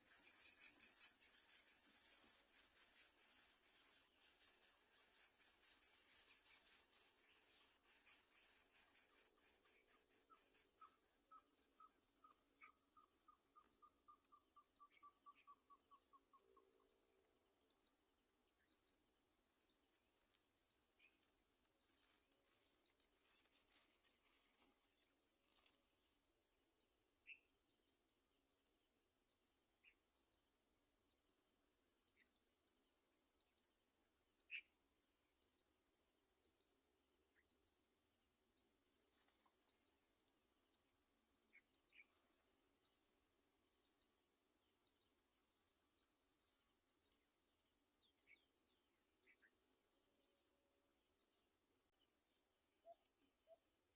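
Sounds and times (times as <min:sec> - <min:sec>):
fast short chirps: 0:00.0 - 0:11.0.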